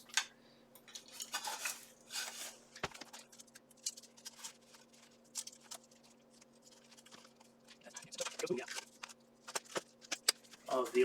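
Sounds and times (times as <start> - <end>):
steel armor rustling and clicking: 0.9 - 7.5.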